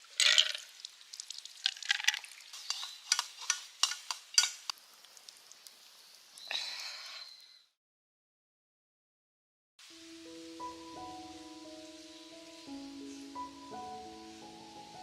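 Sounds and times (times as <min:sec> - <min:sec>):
rice sizzling in a wok: 0:02.4 - 0:05.0, 0:09.8 - 0:15.0
metal utensil scraping a pan: 0:02.5 - 0:04.7.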